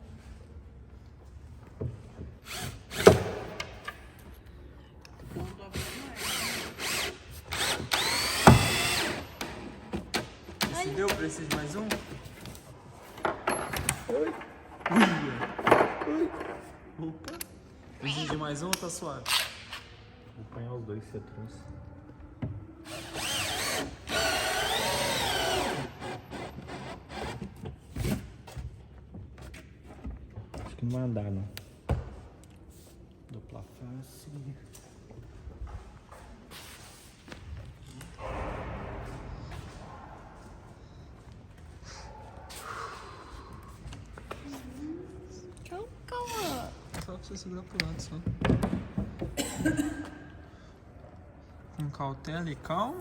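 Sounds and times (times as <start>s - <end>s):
power drill running: 5.8s - 9.6s, 22.9s - 27.4s.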